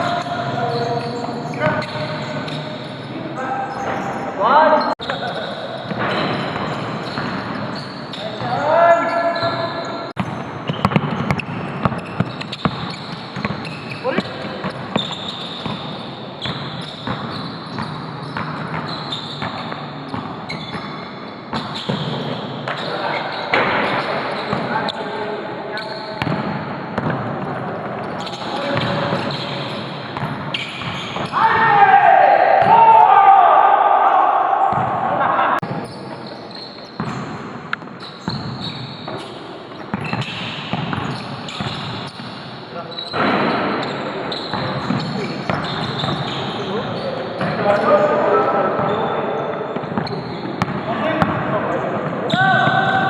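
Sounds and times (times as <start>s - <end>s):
basketball bouncing on gym floor: 10.2s - 22.8s, 26.2s - 29.4s, 34.7s - 35.0s, 37.0s - 42.4s, 43.1s - 46.5s.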